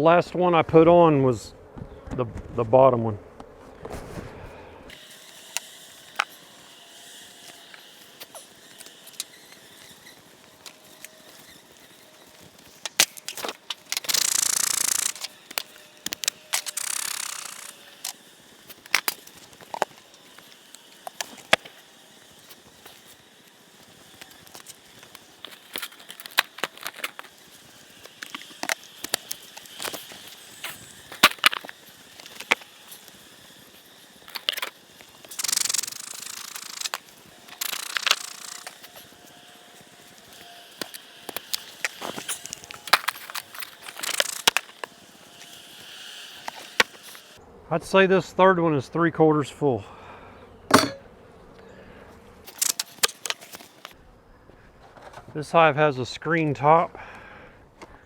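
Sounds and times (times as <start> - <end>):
rushes of air: 3.2 - 4.9.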